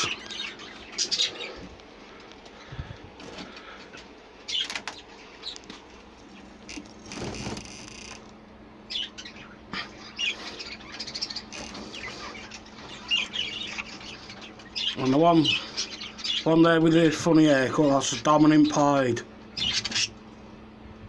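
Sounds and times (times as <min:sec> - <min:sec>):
budgerigars chirping and chattering: 0:00.0 - 0:01.9, 0:04.4 - 0:08.2, 0:08.8 - 0:20.2
wings flapping: 0:02.8 - 0:05.9, 0:06.6 - 0:08.4.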